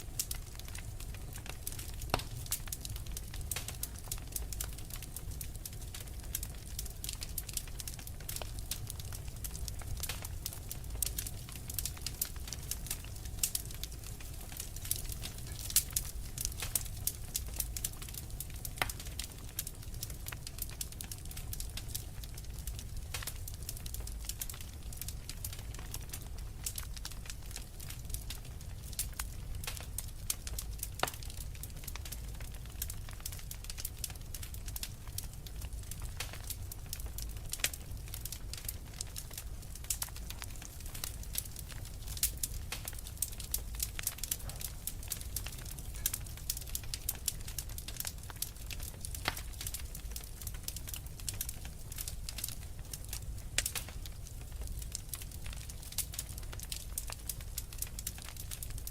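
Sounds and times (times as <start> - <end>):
fire crackling and popping: 0.0 - 58.9
fire rumbling: 0.0 - 58.9.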